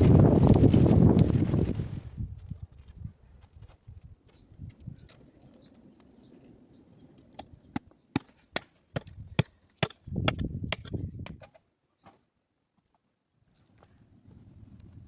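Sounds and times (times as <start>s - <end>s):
hammer striking stone: 7.8s - 11.5s.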